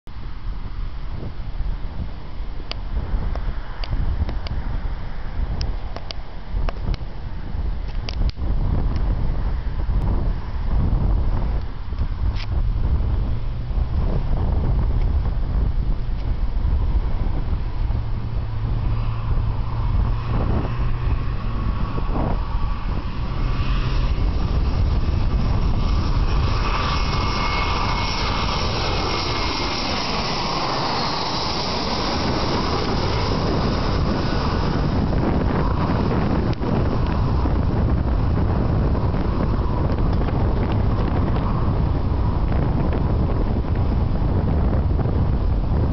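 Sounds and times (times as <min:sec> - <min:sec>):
wind rumbling on microphone: 0:00.0 - 0:45.9
jet airliner passing: 0:00.2 - 0:45.9.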